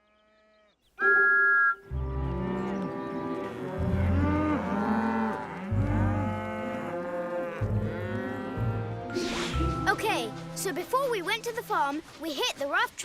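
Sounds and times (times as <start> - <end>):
background music: 1.0 - 12.2
cartoon cows mooing: 2.0 - 9.2.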